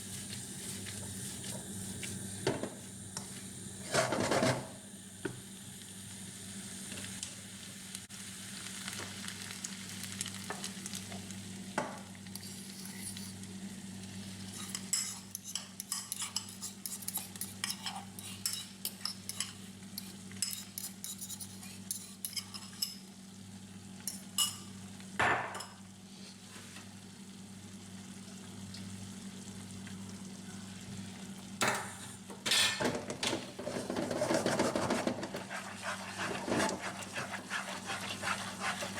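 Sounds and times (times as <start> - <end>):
food sizzling in a pan: 0.0 - 32.4, 33.4 - 38.9
utensil scraping a pan: 3.8 - 4.7, 33.5 - 38.9.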